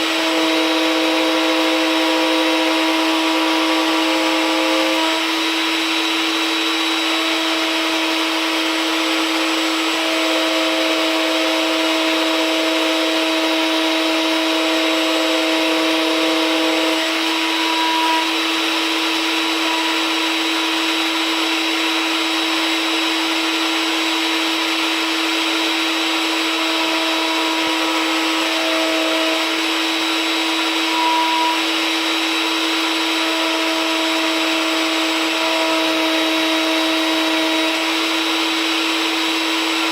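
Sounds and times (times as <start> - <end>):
router whining while trimming wood: 0.0 - 39.9.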